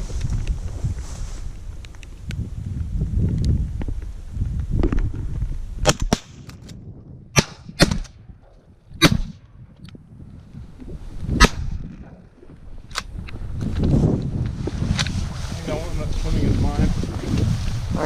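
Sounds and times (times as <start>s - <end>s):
low wind rumble: 0.0s - 18.0s
shotgun blasts: 5.8s - 6.5s, 7.3s - 8.2s, 9.0s - 9.4s, 11.4s - 11.9s.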